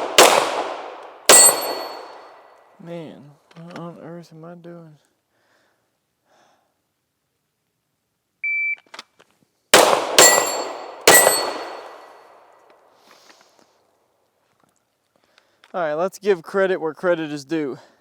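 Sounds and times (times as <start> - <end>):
gunshots: 0.0 - 2.4, 9.8 - 12.2
steel target ringing: 1.3 - 2.4, 10.2 - 12.2
shot timer beep: 8.4 - 8.8.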